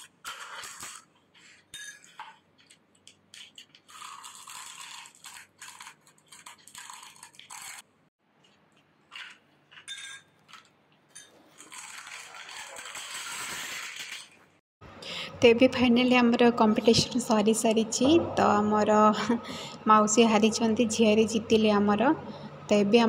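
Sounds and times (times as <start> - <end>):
crisp shells crunching: 3.4 - 7.9, 11.5 - 14.3.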